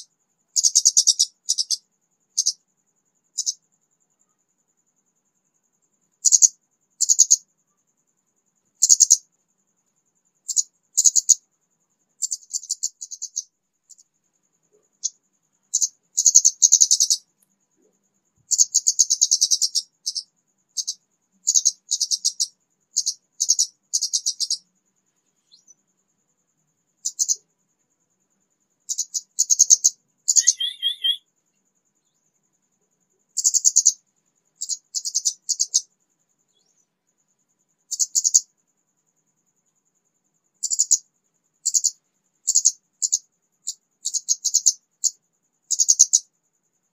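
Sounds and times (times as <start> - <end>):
clear whistled bird phrase: 30.3 - 31.2.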